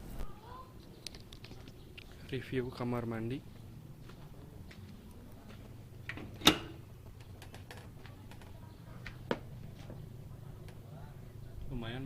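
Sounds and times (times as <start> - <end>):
door latch clicking: 6.1 - 6.8.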